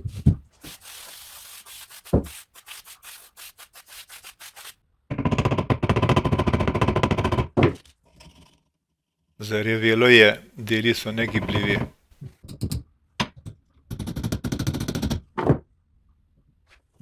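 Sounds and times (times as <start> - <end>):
sanding strokes on metal: 0.6 - 4.8.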